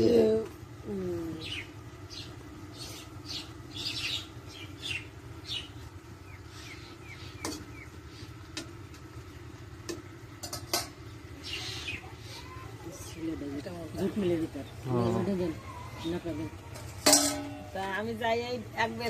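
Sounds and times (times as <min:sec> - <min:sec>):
steady low hum: 0:00.0 - 0:19.0
small bird chirping: 0:01.3 - 0:08.4, 0:11.0 - 0:13.2.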